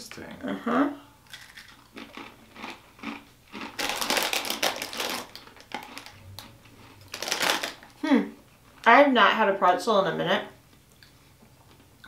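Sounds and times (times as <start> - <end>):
crunchy snack being chewed: 1.3 - 8.0.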